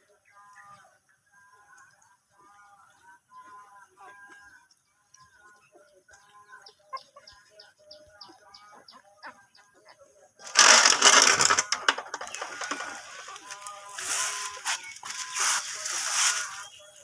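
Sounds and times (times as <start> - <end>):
loud rustling: 10.4 - 17.0.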